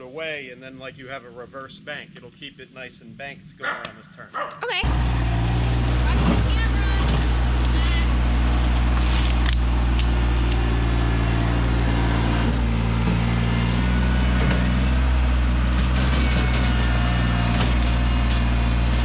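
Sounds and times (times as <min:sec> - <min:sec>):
tractor engine running: 0:04.8 - 0:19.0.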